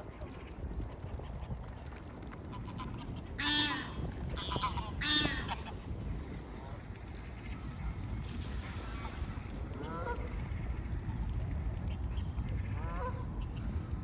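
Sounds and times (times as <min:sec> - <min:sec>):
waterbird honking: 0:03.4 - 0:05.8.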